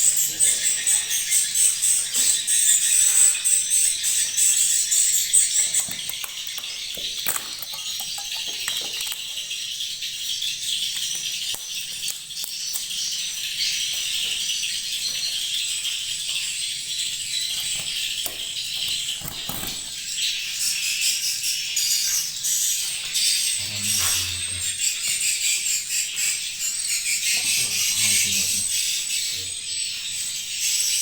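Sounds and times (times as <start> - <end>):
swiftlets chirping and clicking: 0.2 - 14.4.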